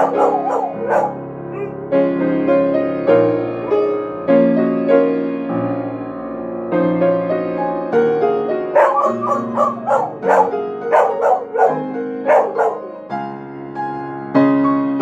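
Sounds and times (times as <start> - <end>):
dog howling: 0.0 - 1.8, 8.8 - 13.0
solo piano: 0.0 - 15.0.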